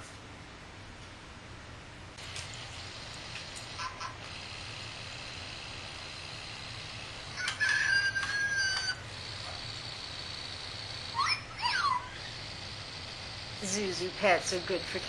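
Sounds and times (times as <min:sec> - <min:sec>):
toy hamster electronic squeaks: 0:07.4 - 0:09.0, 0:11.1 - 0:12.4.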